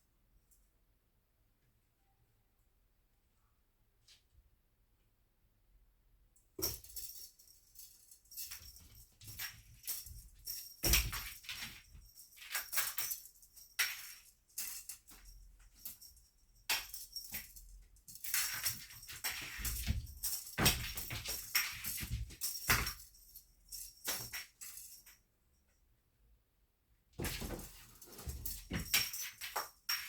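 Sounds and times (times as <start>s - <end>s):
cat toy rattling and jingling: 6.6s - 25.1s, 27.2s - 30.0s.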